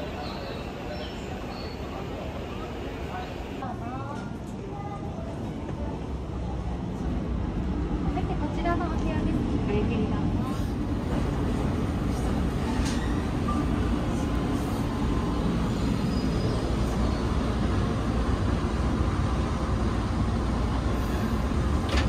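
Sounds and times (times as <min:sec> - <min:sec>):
train rumbling: 0:04.4 - 0:22.0.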